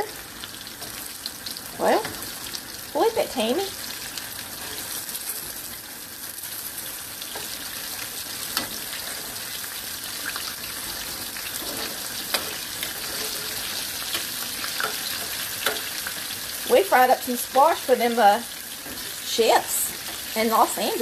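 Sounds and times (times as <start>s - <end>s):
squash sizzling in hot oil: 0.0s - 21.0s
metal spoon clicking on pan: 14.1s - 16.0s.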